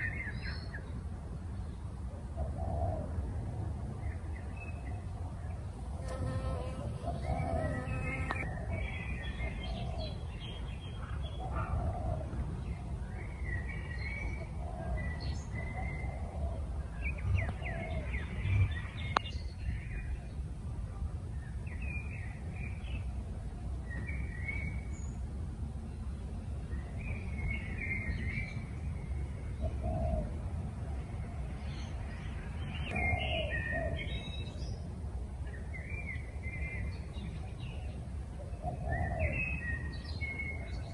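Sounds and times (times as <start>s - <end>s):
birds chirping: 4.0s - 20.2s, 31.5s - 34.8s.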